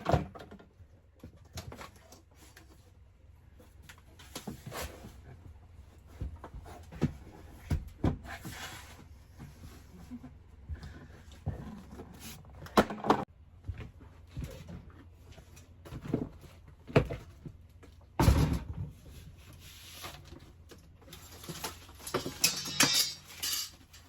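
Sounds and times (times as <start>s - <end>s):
objects knocking and thudding: 9.4s - 15.1s, 21.4s - 24.0s.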